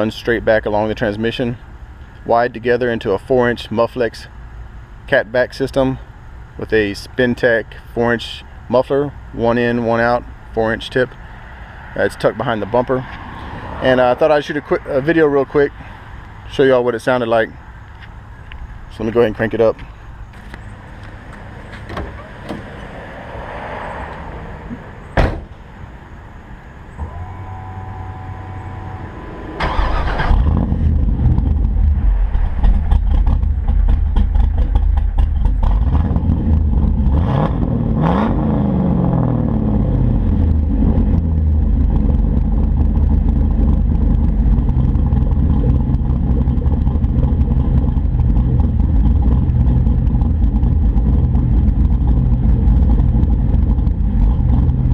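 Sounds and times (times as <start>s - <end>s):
short steady tone: 27.0s - 29.3s
engine cranking and starting: 29.6s - 36.4s, 40.5s - 54.9s
engine idling loudly: 29.7s - 37.1s, 39.6s - 54.9s.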